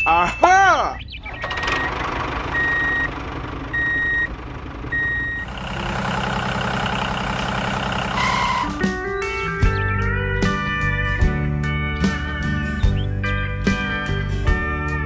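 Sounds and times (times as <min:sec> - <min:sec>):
reversing alarm beeping: 0:00.0 - 0:05.6, 0:08.1 - 0:08.9
vehicle engine running: 0:01.0 - 0:14.5.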